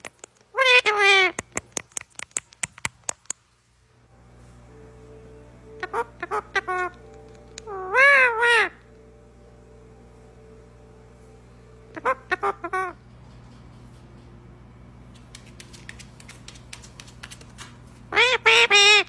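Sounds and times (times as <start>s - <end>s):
parrot squawking: 0.6s - 1.5s, 5.8s - 8.8s, 11.9s - 13.0s, 18.1s - 19.0s.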